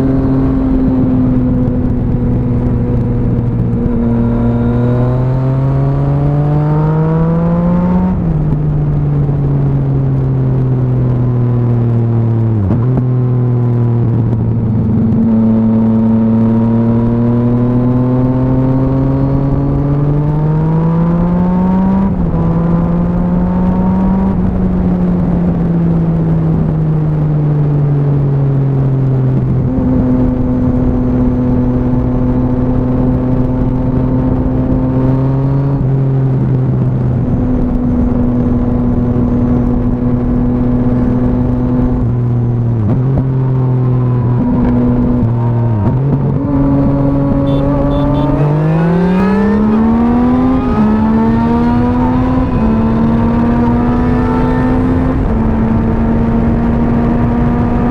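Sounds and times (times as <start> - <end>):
motorcycle engine: 0.0 - 27.3, 28.1 - 57.9
gear change: 41.0 - 57.9.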